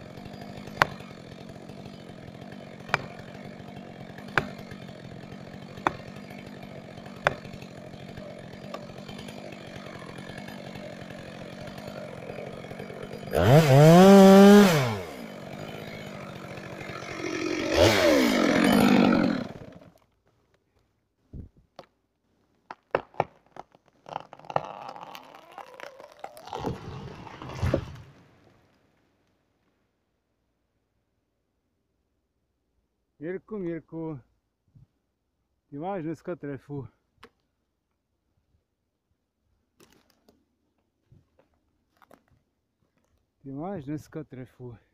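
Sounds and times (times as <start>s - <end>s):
chainsaw idling and revving: 0.0s - 20.0s, 24.0s - 28.0s.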